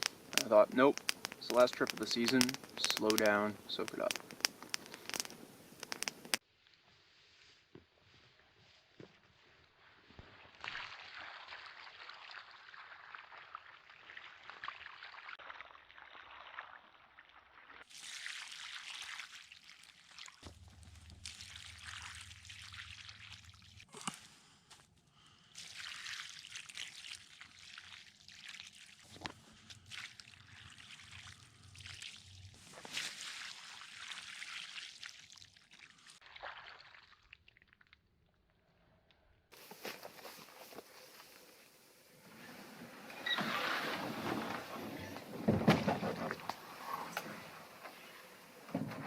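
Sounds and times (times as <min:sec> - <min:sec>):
faint clicks: 0:00.0 - 0:06.4
water trickling and dripping: 0:00.0 - 0:06.4, 0:10.6 - 0:24.0, 0:25.4 - 0:38.0.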